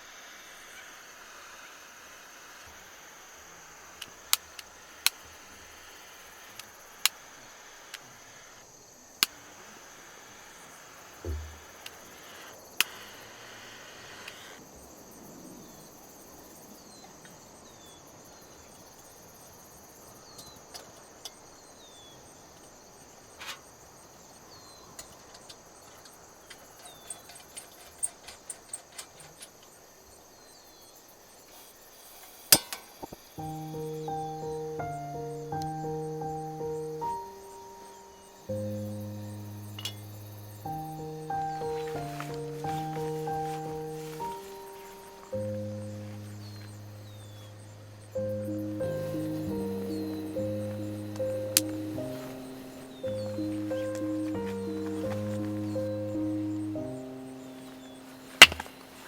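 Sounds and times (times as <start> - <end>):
insects droning: 0.0 - 59.0
sharp clicks and knocks: 11.3 - 11.7, 58.4 - 59.0.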